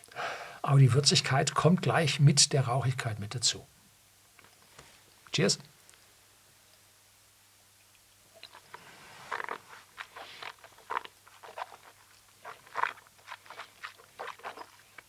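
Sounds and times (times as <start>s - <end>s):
sipping: 8.4s - 15.0s
wet mouth smacking and clicking: 8.4s - 15.0s.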